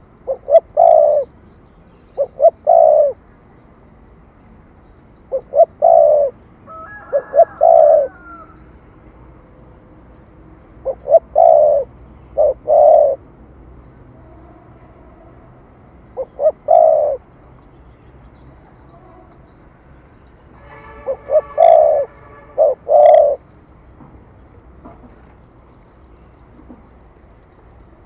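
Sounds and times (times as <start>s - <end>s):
dove cooing: 0.0s - 1.3s, 2.1s - 3.2s, 5.3s - 8.6s, 10.7s - 13.3s, 14.2s - 17.3s, 21.1s - 23.5s.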